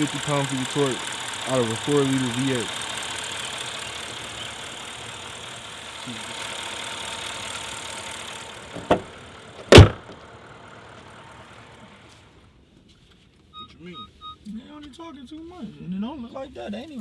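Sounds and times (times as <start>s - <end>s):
car engine hum: 0.0s - 13.5s
cabin noise: 8.6s - 10.2s
sharp knocks: 9.7s - 10.2s.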